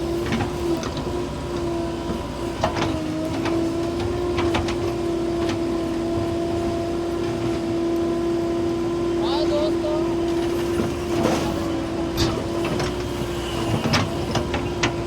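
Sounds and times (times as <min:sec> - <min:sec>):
diesel machinery running with whine: 0:00.0 - 0:15.0.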